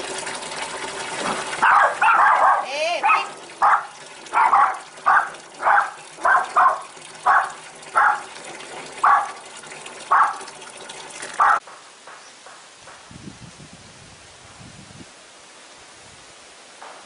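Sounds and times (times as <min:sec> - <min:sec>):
rushing water: 0:00.0 - 0:13.0
dog barking: 0:01.6 - 0:08.3, 0:09.0 - 0:09.4, 0:10.1 - 0:10.5, 0:11.4 - 0:11.6.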